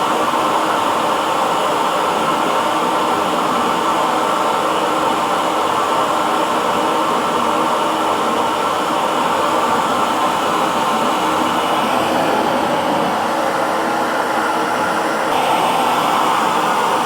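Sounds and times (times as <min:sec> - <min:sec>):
hair dryer running: 0:08.1 - 0:17.0.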